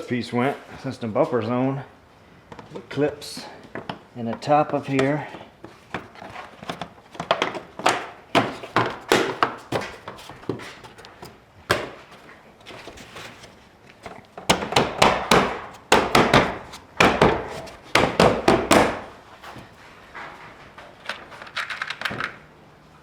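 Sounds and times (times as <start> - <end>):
plastic trim knocking into clips: 7.2 - 10.1, 11.7 - 12.2, 14.5 - 19.1.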